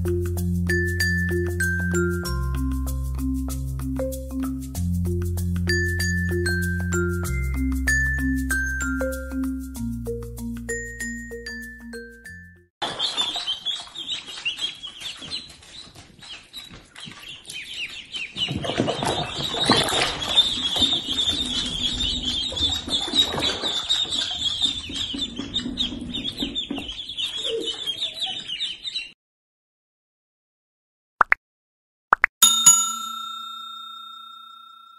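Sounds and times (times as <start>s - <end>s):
ducklings peeping: 12.8s - 29.2s.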